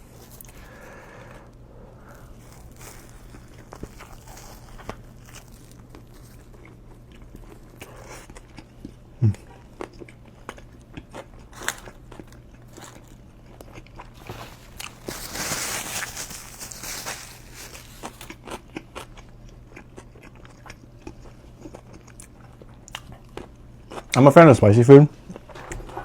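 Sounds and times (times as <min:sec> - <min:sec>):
crunchy rustling: 0:00.0 - 0:08.1, 0:11.5 - 0:18.6
chewing and biting sandwich: 0:00.0 - 0:24.2.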